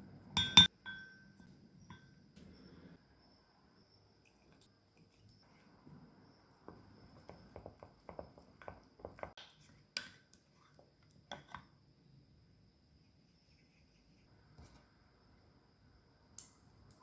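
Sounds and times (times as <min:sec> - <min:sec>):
kitchen items clicking and tapping: 0:00.4 - 0:01.3.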